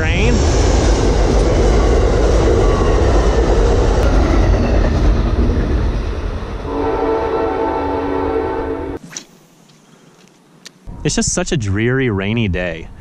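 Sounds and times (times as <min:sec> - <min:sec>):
train rumbling over steel bridge: 0:00.0 - 0:09.0.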